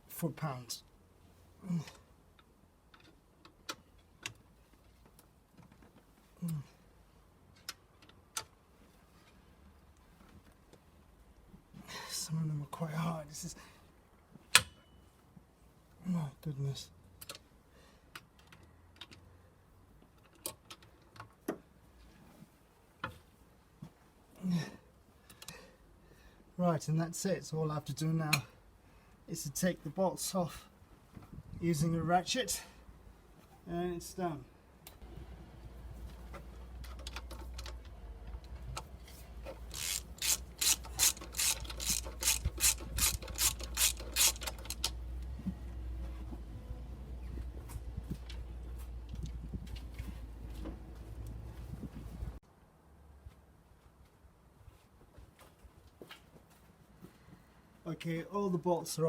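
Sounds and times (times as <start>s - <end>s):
metal clicks and knocks of tools: 36.8s - 45.0s.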